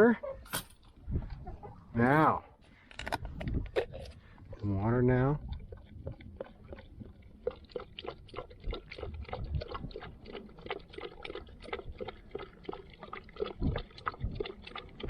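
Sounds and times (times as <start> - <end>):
dog lapping water: 4.4 - 15.0.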